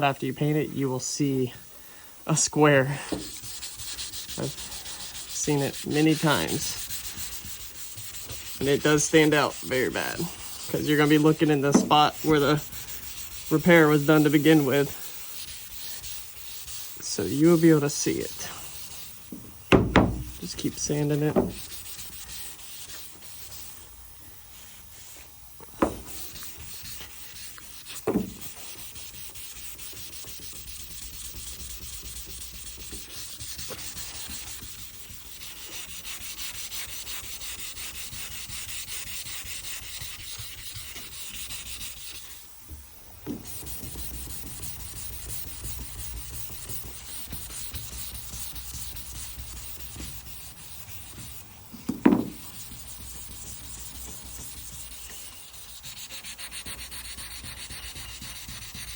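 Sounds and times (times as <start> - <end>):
sandpaper rubbing on panel: 2.3 - 42.6, 43.2 - 58.9
sharp knocks: 11.7 - 12.0, 19.3 - 20.4, 21.3 - 21.7, 28.0 - 28.4, 51.8 - 52.4.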